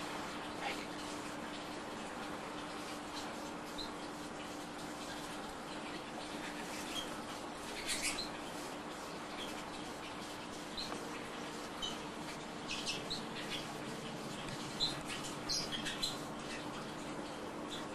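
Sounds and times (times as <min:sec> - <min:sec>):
canaries chirping: 0:06.7 - 0:08.4, 0:12.6 - 0:13.9, 0:14.6 - 0:16.9.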